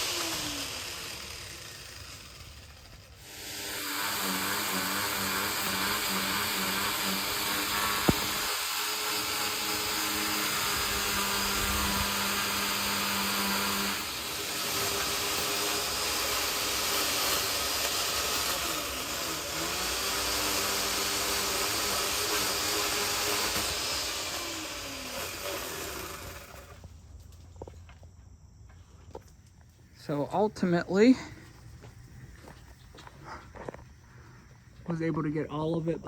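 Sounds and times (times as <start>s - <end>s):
electric pole saw whining: 0.0s - 27.0s.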